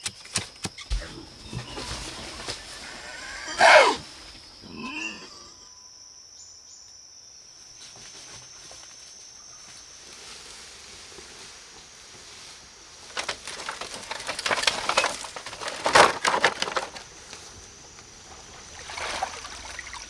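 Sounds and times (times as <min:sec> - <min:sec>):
animal crying: 0:00.9 - 0:05.7.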